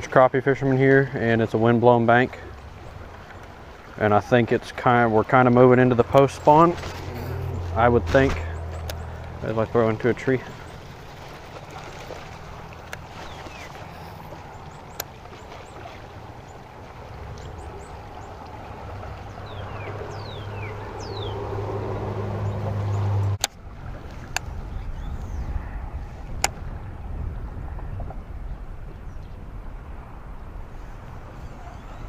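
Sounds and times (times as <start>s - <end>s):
electric trolling motor humming: 6.1s - 9.5s
bird chirps: 19.4s - 21.4s.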